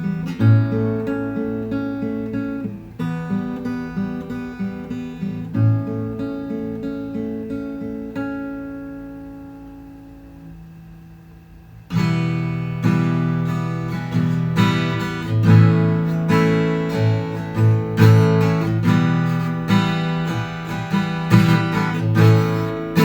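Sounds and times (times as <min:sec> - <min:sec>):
acoustic guitar chords: 0:00.0 - 0:23.0.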